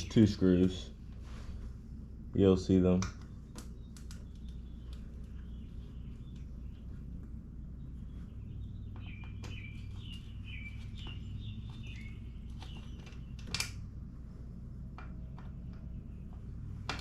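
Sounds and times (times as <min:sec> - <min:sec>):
steady low hum: 0:00.0 - 0:17.0
bird chirping: 0:03.1 - 0:13.5.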